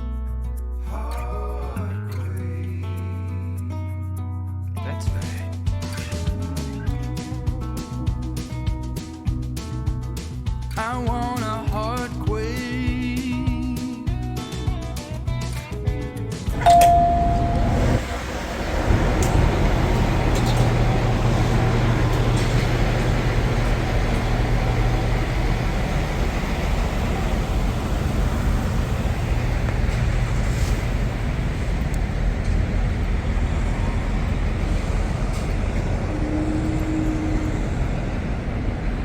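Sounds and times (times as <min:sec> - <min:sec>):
trucks and traffic noise: 0:16.4 - 0:39.0
low engine hum: 0:16.5 - 0:39.0.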